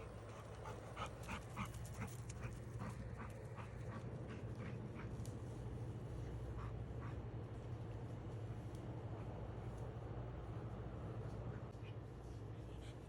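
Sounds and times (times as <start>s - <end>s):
dog panting: 0.0s - 5.3s.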